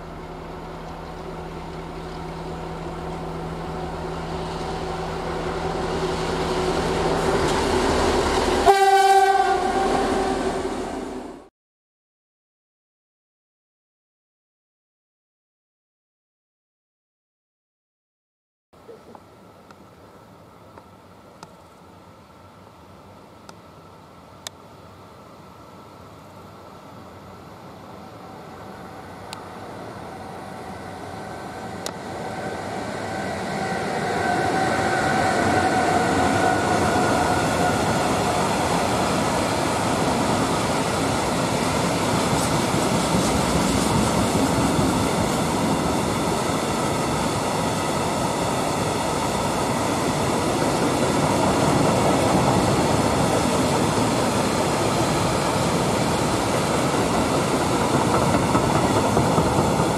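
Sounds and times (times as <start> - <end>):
locomotive passing: 0.0 - 11.4, 26.5 - 59.9
light locomotive whine: 0.0 - 11.5, 18.8 - 59.9.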